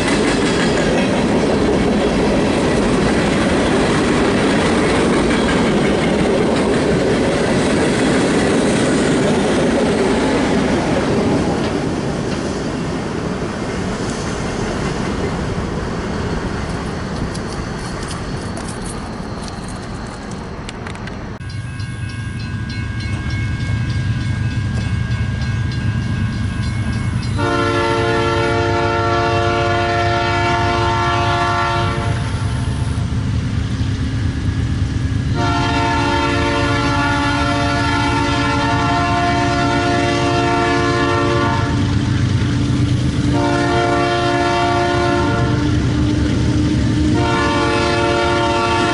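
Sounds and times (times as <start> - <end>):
locomotive engine rumbling: 0.0 - 48.9
train air horn blasts: 27.4 - 32.9, 35.3 - 42.0, 43.2 - 48.9.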